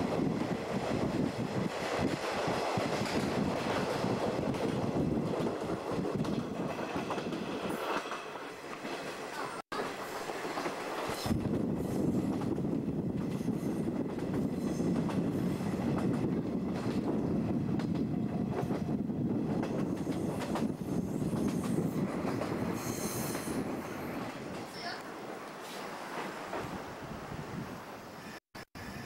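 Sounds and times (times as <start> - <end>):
train wheels clickety-clack: 0.0 - 26.8
high wheel squeal: 22.8 - 24.2.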